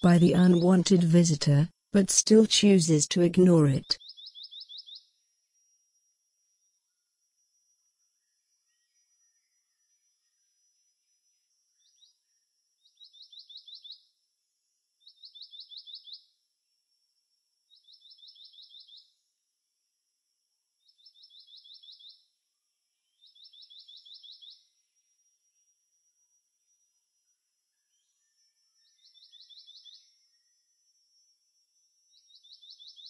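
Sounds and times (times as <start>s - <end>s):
bird whistling song: 4.0s - 5.1s, 12.9s - 14.1s, 15.0s - 16.3s, 17.7s - 19.1s, 20.9s - 22.2s, 23.2s - 24.7s, 28.8s - 30.1s, 32.2s - 33.0s.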